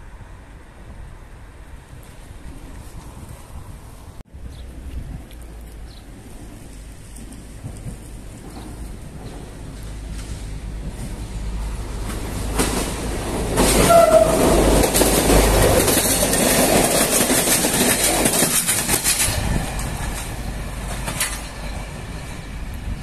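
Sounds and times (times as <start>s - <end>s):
train wheels clattering over joints: 7.2s - 22.6s
train horn: 13.7s - 14.7s.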